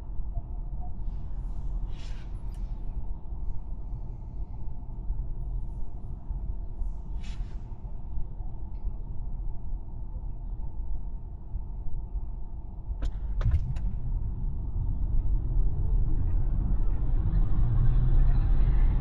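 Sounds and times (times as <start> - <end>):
road and tyre rumble: 12.8 - 19.0.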